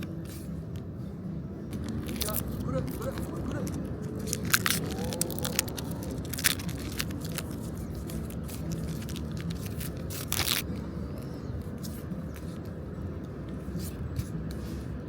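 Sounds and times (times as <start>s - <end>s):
cards being handled: 0.0s - 0.9s, 1.6s - 15.0s
low background hum: 0.0s - 15.0s
wrappers crinkling: 1.7s - 10.8s.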